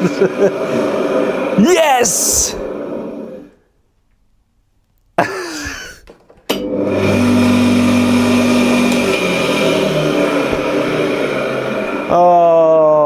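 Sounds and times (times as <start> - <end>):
wood chipper motor running: 6.6 - 12.2.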